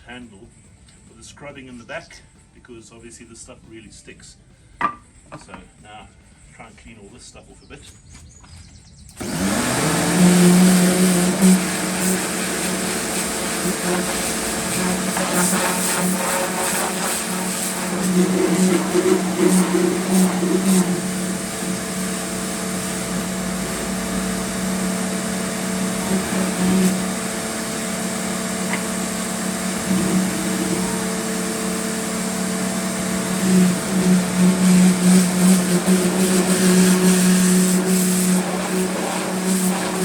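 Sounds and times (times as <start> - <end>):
small electric motor humming: 9.2 - 40.0.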